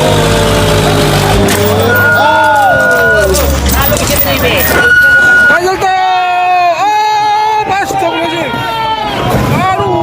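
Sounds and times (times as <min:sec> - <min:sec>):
truck engine droning: 0:00.0 - 0:05.8
high tones sliding downward: 0:01.5 - 0:05.6.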